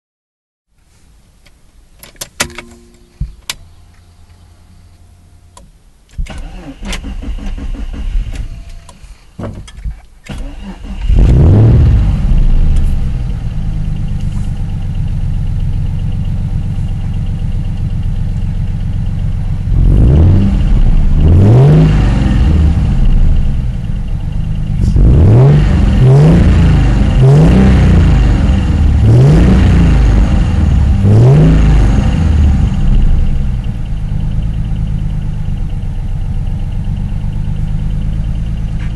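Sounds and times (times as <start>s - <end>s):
car engine idling: 2.5s - 38.9s
car engine revving: 10.3s - 38.9s.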